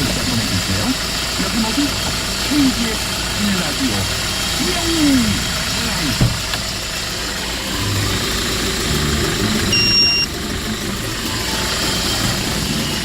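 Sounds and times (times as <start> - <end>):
truck engine running: 0.0 - 13.0
short electronic beep: 9.7 - 10.3.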